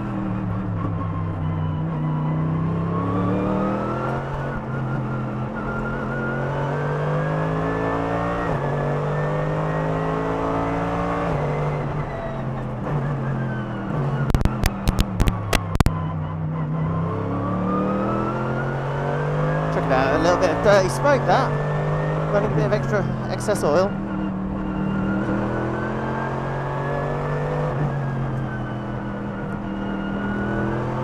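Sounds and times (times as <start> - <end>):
sharp exhaust crackles: 4.3 - 4.6, 14.3 - 15.9.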